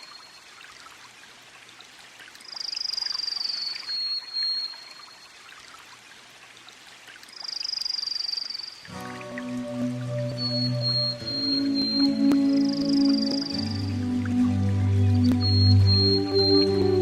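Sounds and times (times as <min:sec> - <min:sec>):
faint hiss: 0:07.3 - 0:17.0
thin high tone: 0:08.9 - 0:17.0.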